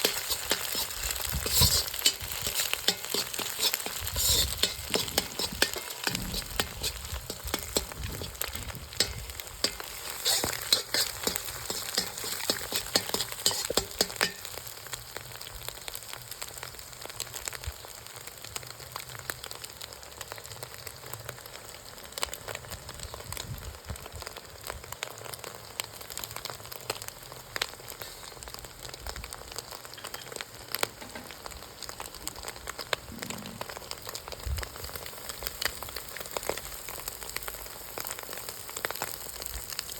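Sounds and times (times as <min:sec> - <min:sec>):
stirring scrapes and clicks: 0:00.0 - 0:14.5
food sizzling in a pan: 0:00.0 - 0:39.9.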